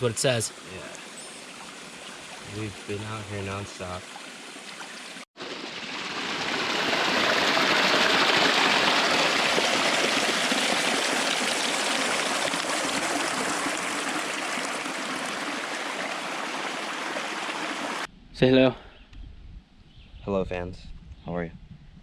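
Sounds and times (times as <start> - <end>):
flowing stream water rushing: 0.6 - 18.1.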